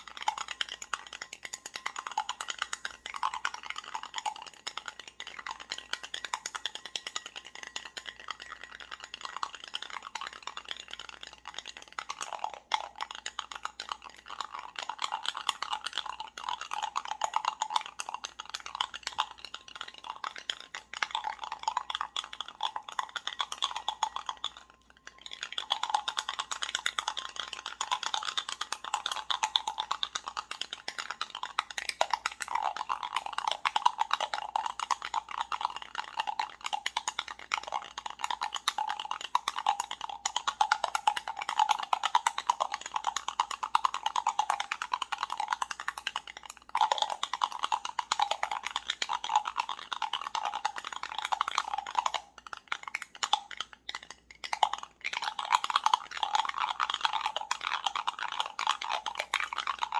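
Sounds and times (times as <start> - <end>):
small hard objects rattling: 0.0 - 59.9.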